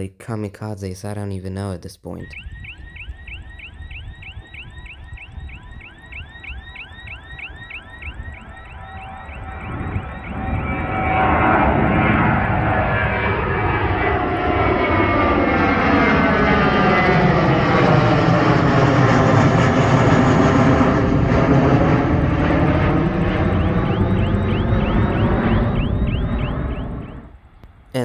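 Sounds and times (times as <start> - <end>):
jet airliner engine noise: 2.2 - 28.0
jet engine whining: 2.2 - 28.0.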